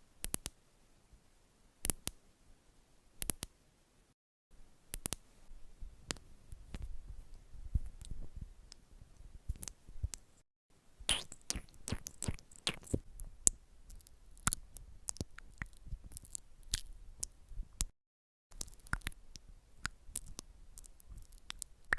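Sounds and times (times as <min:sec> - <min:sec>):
crisp clicks and crackles: 0:11.5 - 0:17.9, 0:18.5 - 0:21.9.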